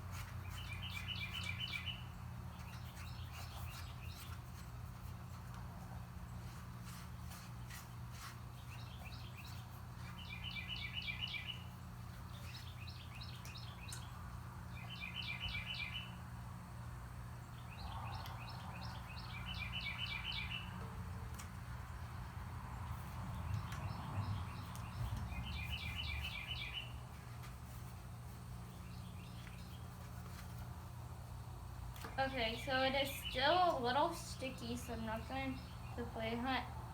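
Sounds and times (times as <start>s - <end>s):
steady low hum: 0.0s - 36.9s
songbird trilling: 0.6s - 2.0s, 10.2s - 11.6s, 14.8s - 16.1s, 18.4s - 20.7s, 24.4s - 26.9s.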